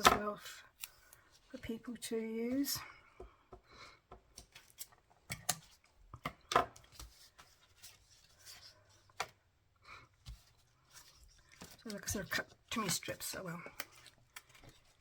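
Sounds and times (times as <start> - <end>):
paper rustling: 6.8 - 9.4, 10.2 - 15.0.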